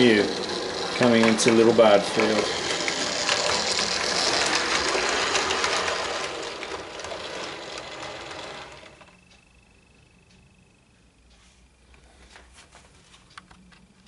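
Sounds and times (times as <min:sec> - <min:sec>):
wheels clattering over rails: 0:00.0 - 0:09.3
model train motor whirring: 0:00.0 - 0:09.4.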